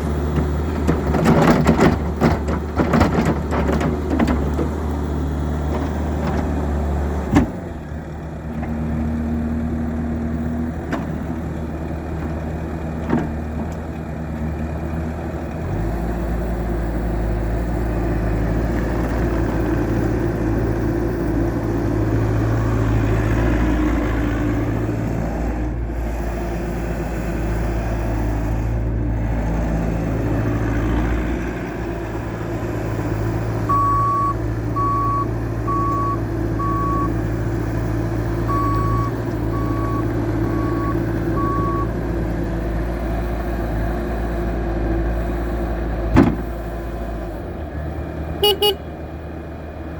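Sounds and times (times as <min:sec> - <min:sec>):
diesel engine running: 0:00.0 - 0:49.9
reversing alarm beeping: 0:33.7 - 0:37.2, 0:38.5 - 0:41.9
sharp knocks: 0:46.1 - 0:46.5.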